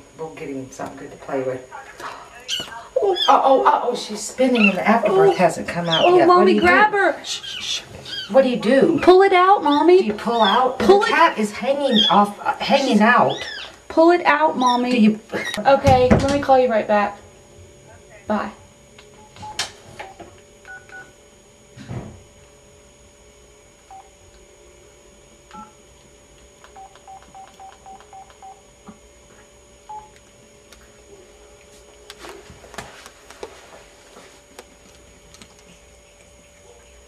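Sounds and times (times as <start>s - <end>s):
telephone keypad beeps: 26.8s - 28.6s.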